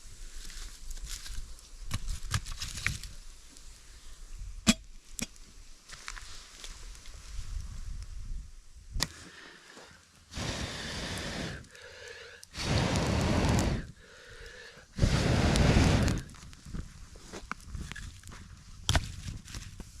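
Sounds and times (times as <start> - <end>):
fire crackle: 0.0 - 20.0
breaths blown into campfire: 9.0 - 16.4.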